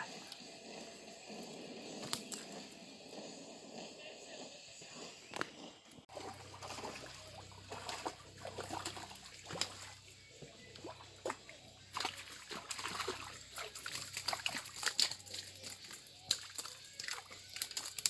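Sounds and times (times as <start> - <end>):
water splashing and trickling: 6.0 - 18.0.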